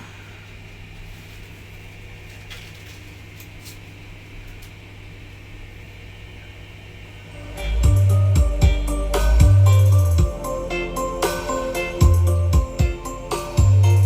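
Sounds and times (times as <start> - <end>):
low electrical hum: 0.0 - 14.0
faint clicks and creaks: 0.4 - 4.8.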